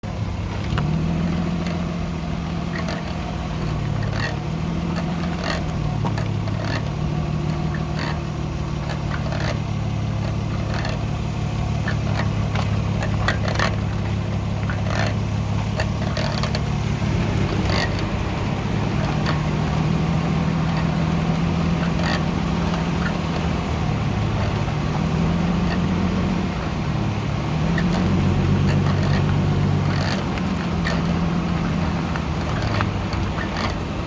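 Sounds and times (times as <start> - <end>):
brakes squeaking: 0.0 - 34.0
car engine hum: 0.0 - 34.0.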